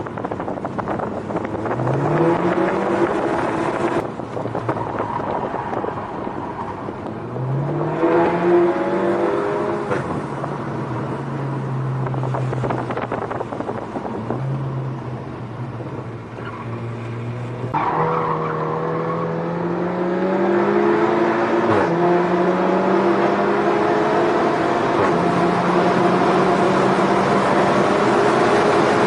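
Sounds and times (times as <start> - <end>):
tyre road noise: 0.0 - 29.0
car engine accelerating: 0.2 - 29.0.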